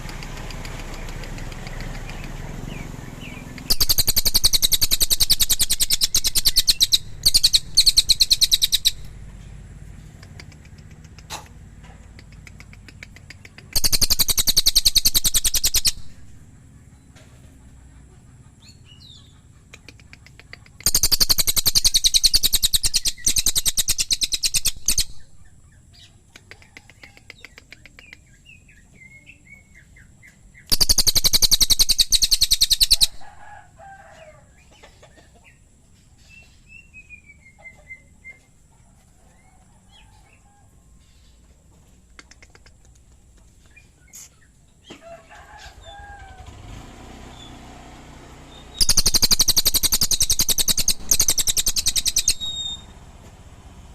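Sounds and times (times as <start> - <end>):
songbird fast dry rattling call: 0.0 - 9.0, 19.8 - 25.2, 30.7 - 33.2, 48.7 - 52.8
soft bird chirps and whistles: 0.2 - 9.1, 19.8 - 25.4, 26.0 - 33.2, 48.5 - 53.0.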